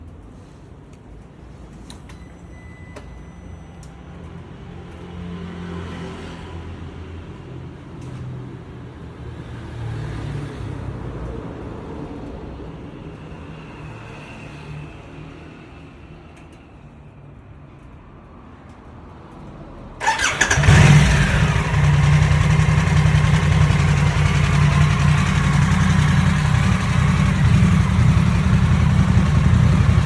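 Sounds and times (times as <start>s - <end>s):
motorcycle engine revving: 20.0s - 30.0s.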